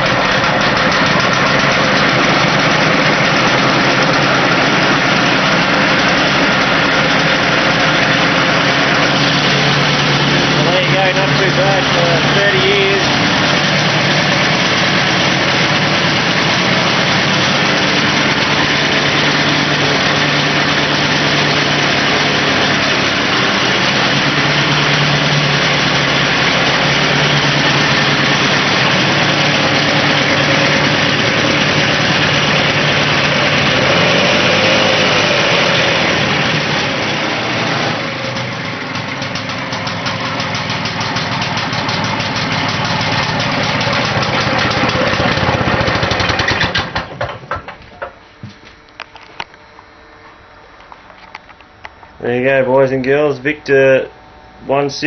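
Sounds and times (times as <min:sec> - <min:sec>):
lawn mower engine running: 0:00.0 - 0:54.6.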